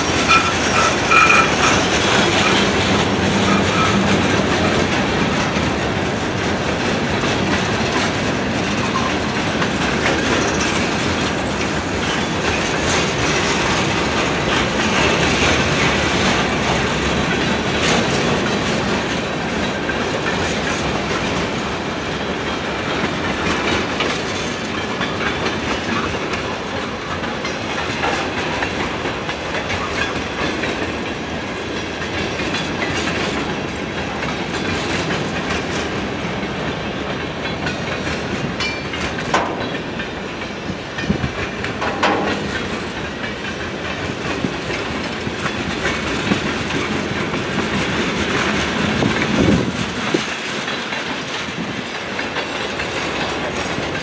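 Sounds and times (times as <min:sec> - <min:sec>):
freight train rumble and clatter: 0:00.0 - 0:54.0
wheel clicks on rails: 0:36.7 - 0:54.0.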